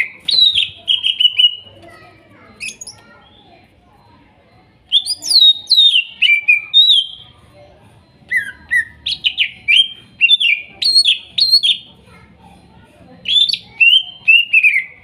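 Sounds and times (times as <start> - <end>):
bird singing whistled notes: 0.0 - 1.6, 4.9 - 7.3, 8.2 - 11.9, 13.2 - 15.0.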